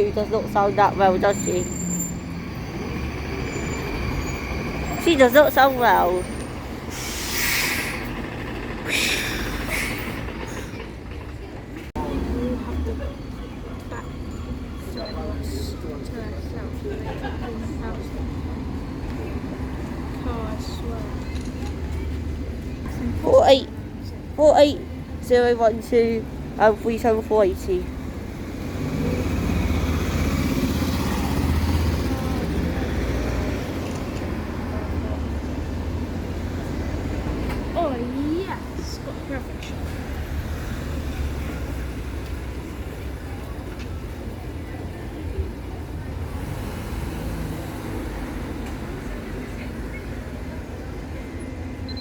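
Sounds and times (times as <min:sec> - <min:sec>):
diesel bus engine idling: 0:00.0 - 0:13.7
diesel bus engine rumbling: 0:00.0 - 0:52.0.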